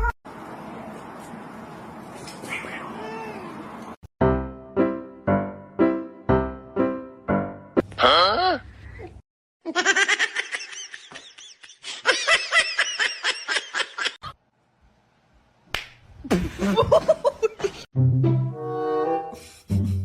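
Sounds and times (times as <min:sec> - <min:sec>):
music: 0:04.2 - 0:07.8, 0:18.0 - 0:20.0.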